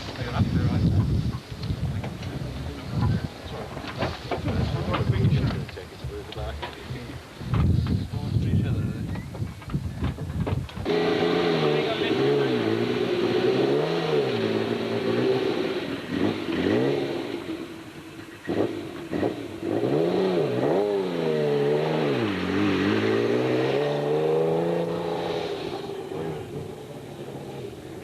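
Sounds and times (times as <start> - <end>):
rally car engine revving: 10.8 - 28.0.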